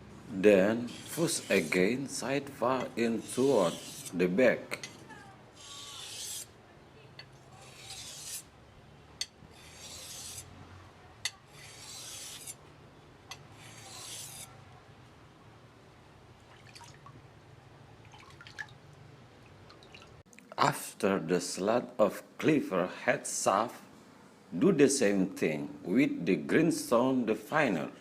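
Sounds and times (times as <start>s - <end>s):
blade scraping on sharpening stone: 0.8s - 1.9s, 2.8s - 5.0s, 5.6s - 6.5s, 7.2s - 8.5s, 9.2s - 10.5s, 11.2s - 12.6s, 13.3s - 14.6s.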